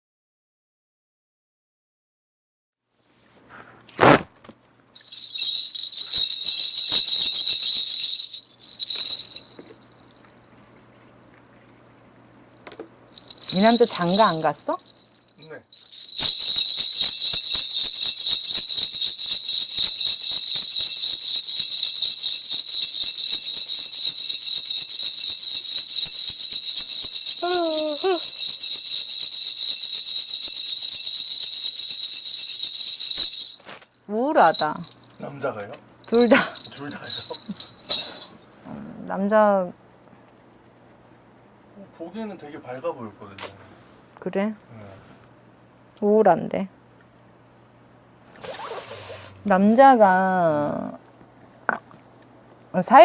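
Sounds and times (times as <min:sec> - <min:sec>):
brass bells jingling: 0:05.0 - 0:10.5, 0:12.3 - 0:38.6.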